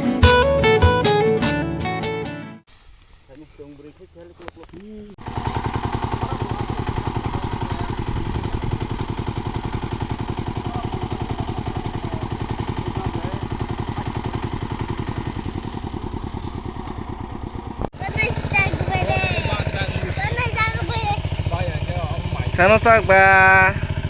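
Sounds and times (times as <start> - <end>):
small engine running steadily: 5.2 - 24.0.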